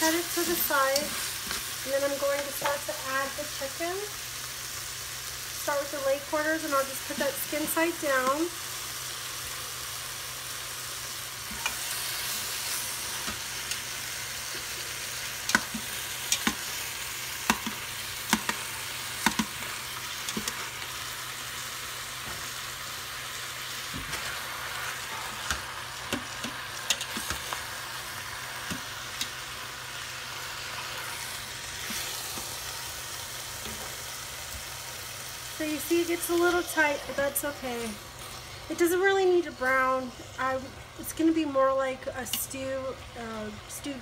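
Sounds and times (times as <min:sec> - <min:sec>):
chicken sizzling in oil: 0:00.0 - 0:44.0
metal tongs clicking on pot: 0:15.4 - 0:16.6, 0:25.4 - 0:27.6, 0:28.6 - 0:29.4.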